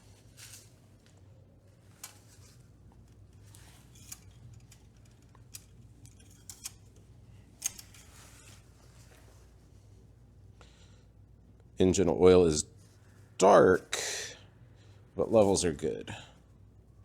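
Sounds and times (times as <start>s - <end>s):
metal-on-metal clicks and scrapes: 1.9s - 8.8s.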